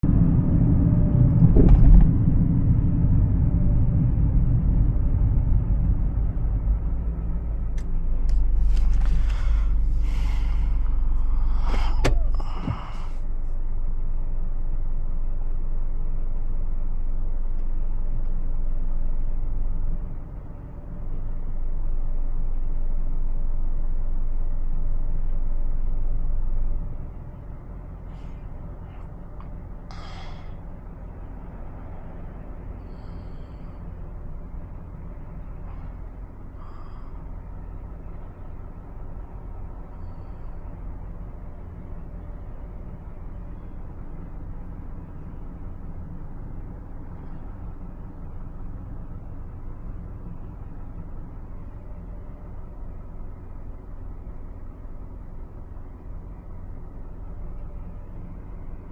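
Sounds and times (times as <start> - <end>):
car engine rumble: 0.0 - 58.9
road noise: 0.0 - 58.9.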